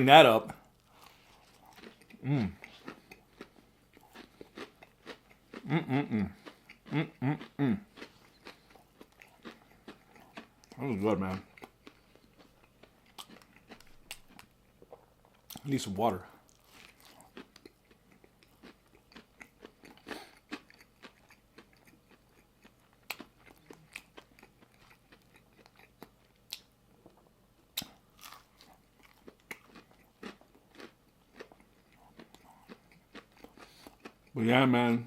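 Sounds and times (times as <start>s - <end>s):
chewing crunchy food: 0.5s - 34.4s.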